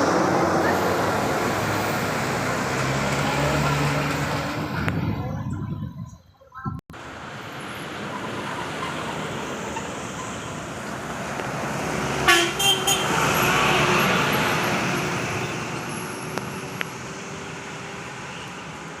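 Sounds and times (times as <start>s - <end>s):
vehicle passing: 0.0s - 5.5s, 7.2s - 19.0s
car horn toots: 12.3s - 13.1s.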